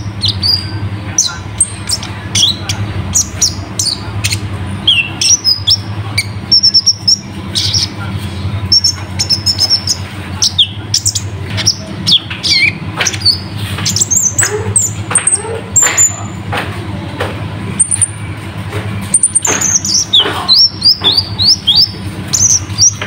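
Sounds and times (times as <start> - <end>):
sunbird singing high chirps: 0.0 - 8.0, 19.1 - 23.0
steady low hum: 0.0 - 23.0.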